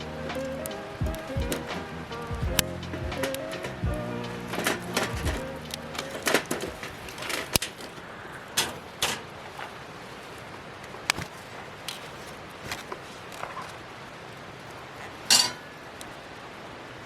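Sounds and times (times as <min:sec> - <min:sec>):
low background noise: 0:00.0 - 0:17.0
cooking gear knocking and clicking: 0:02.4 - 0:05.4.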